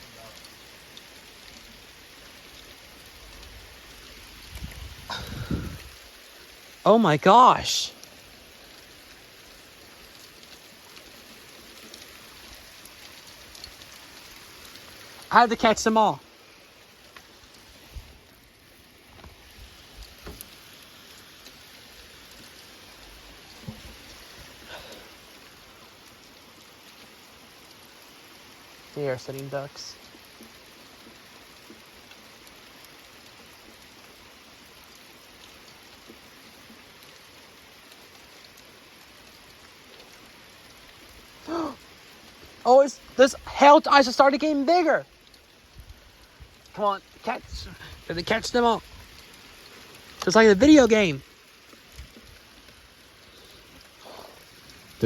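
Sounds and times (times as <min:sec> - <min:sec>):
hailstones ticking on surfaces: 0:00.0 - 0:55.0
rain hissing: 0:00.0 - 0:55.0
faint ticks: 0:17.0 - 0:18.1.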